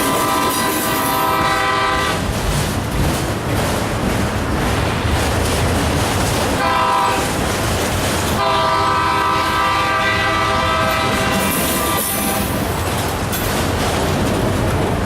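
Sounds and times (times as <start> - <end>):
locomotive horn blasts: 0.0 - 2.2, 6.6 - 7.4, 8.4 - 12.6
passing train rumble: 0.0 - 15.0.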